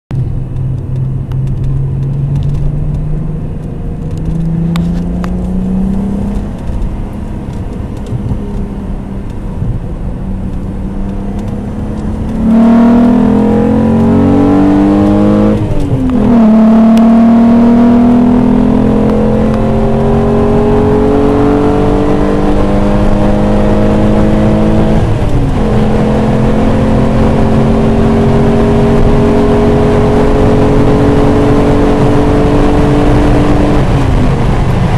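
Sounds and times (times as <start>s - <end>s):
car engine accelerating hard: 0.2s - 34.9s.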